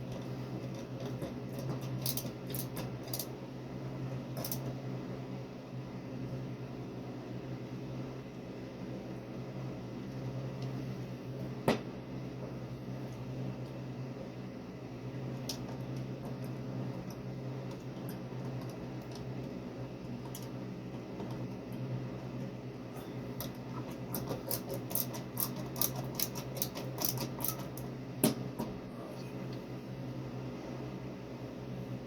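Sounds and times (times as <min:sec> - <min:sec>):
steady low hum: 0:00.0 - 0:32.0
small clicks and scratches: 0:00.1 - 0:03.3, 0:04.3 - 0:04.8, 0:15.4 - 0:19.3, 0:23.4 - 0:27.9.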